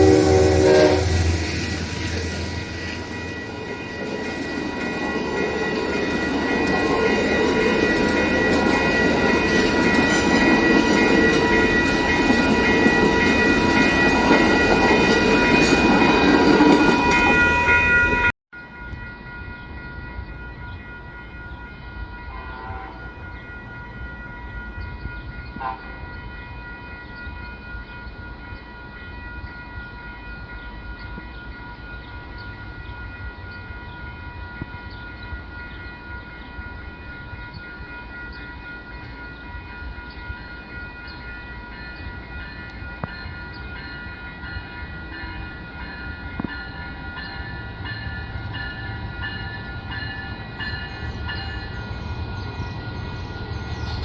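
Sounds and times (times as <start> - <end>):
high multi-tone whine: 0.0 - 26.3, 46.2 - 54.0
train rumbling: 0.0 - 54.0.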